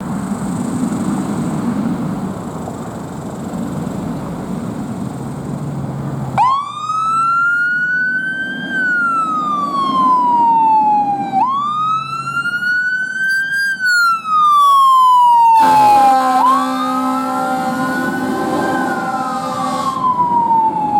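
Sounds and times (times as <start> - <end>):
fire engine rumbling: 0.0 - 20.9
siren wailing: 6.4 - 20.9.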